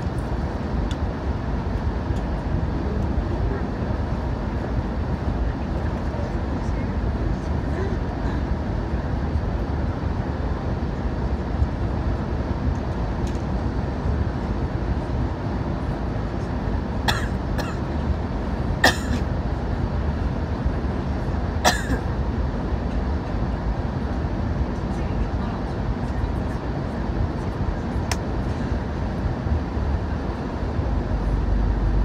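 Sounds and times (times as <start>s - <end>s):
train rumbling in motion: 0.0s - 32.0s.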